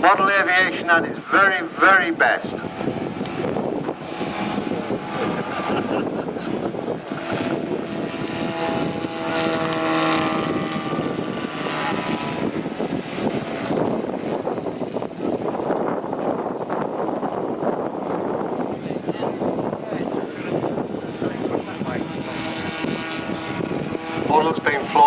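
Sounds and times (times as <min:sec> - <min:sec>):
model aircraft engine flying past: 0:00.0 - 0:25.0.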